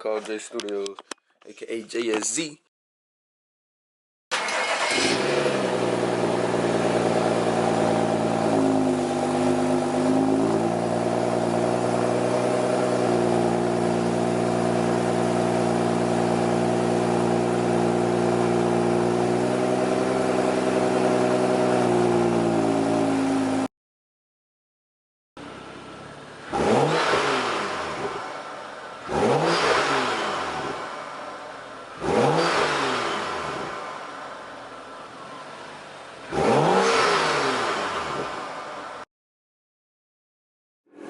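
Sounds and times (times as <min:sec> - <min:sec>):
car exhaust droning: 0:05.1 - 0:23.6.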